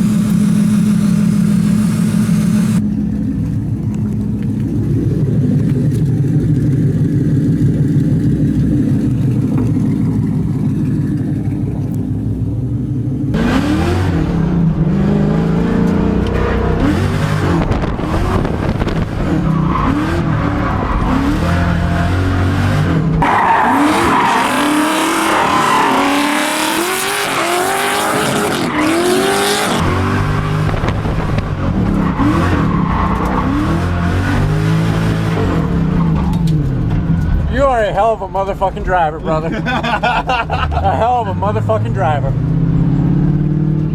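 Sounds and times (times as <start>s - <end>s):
car engine revving: 0.0s - 43.9s
tyres squealing and skidding: 19.3s - 22.1s, 23.2s - 30.8s, 31.7s - 34.1s.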